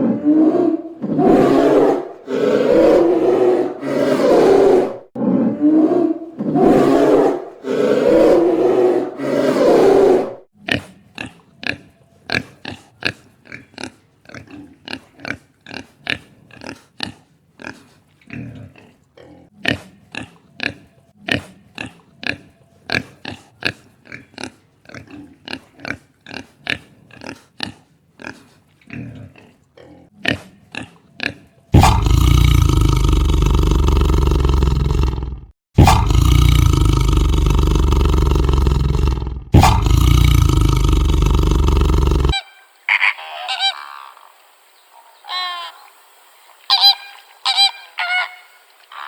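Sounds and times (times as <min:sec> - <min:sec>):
animal roaring call: 0:00.0 - 0:10.5, 0:31.8 - 0:42.4
animal grunting: 0:00.0 - 0:42.4.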